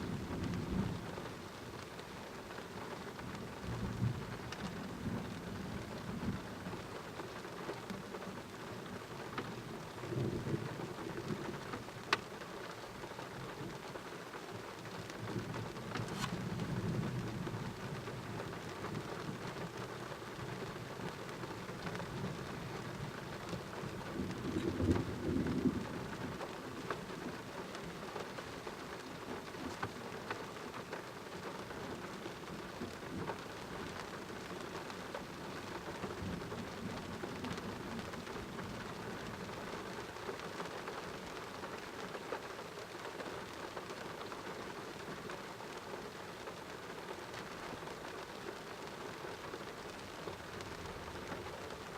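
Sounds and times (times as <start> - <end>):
low rumble of thunder: 0.0 - 1.5, 3.2 - 7.1, 8.8 - 12.0, 15.1 - 28.6, 49.6 - 51.9
steady rain falling: 0.0 - 51.9.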